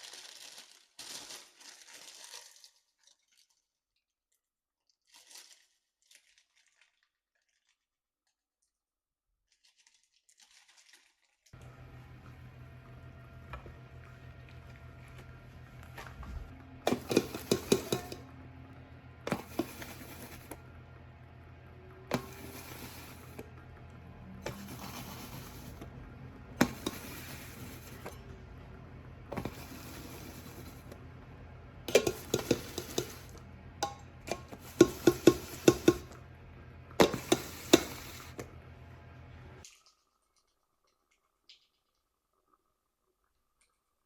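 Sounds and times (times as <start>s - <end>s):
utensils clinking on dishes: 16.8s - 18.4s, 31.9s - 36.2s, 37.0s - 38.5s.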